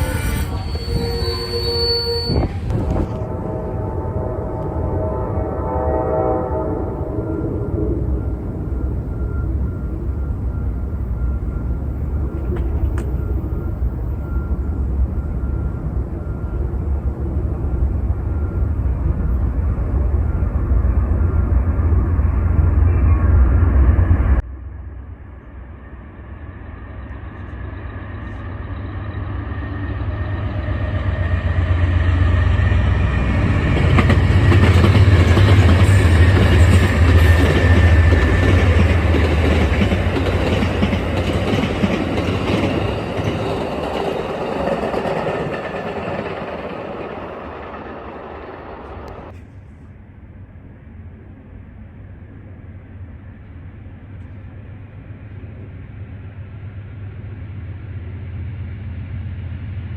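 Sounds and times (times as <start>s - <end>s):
train passing with heavy rumble: 0.0s - 59.9s
train wheels clattering over rail joints: 33.6s - 49.6s.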